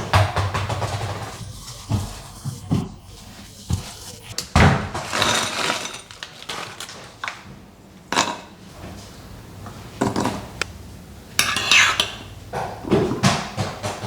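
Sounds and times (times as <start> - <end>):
objects knocking and clattering: 0.0 - 2.9
rushing scrape: 0.5 - 6.9.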